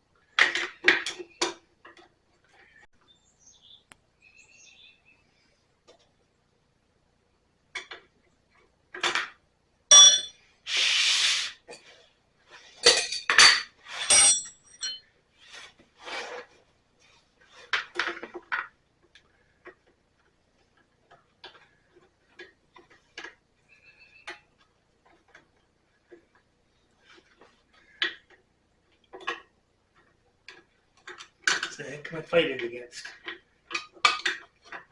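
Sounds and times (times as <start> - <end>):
hand tools clinking on metal: 9.9 - 10.3, 12.8 - 15.0
hiss: 10.7 - 11.7.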